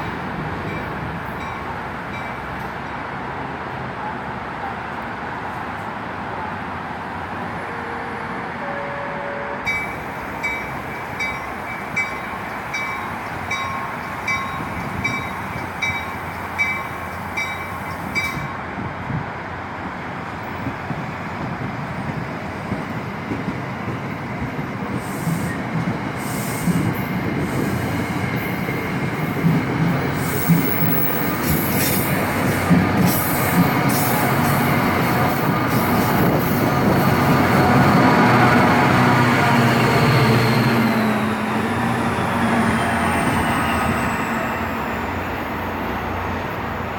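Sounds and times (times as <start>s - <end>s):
train wheels on rails: 9.6s - 46.9s.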